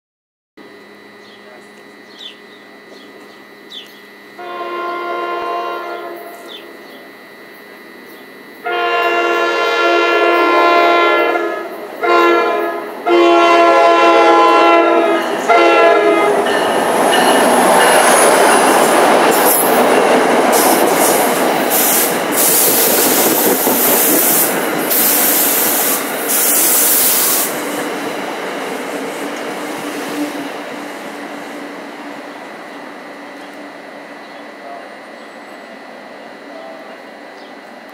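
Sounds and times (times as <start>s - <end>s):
locomotive horn blasts: 4.4s - 6.7s, 8.6s - 16.6s
train wheels on rails: 14.4s - 37.9s.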